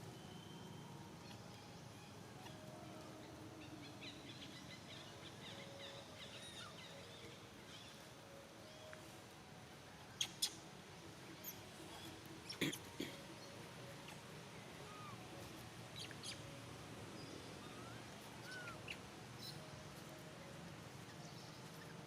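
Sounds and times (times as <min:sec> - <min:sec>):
low background hiss: 0:00.0 - 0:22.0
animal squeaks and chirps: 0:17.7 - 0:19.0.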